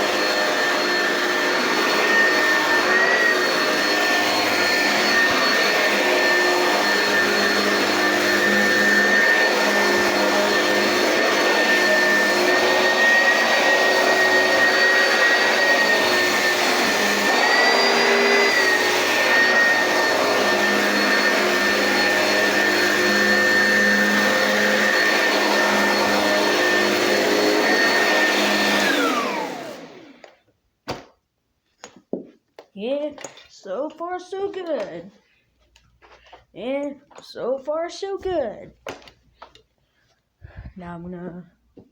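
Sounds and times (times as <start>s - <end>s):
vacuum cleaner whining: 0.0s - 31.1s.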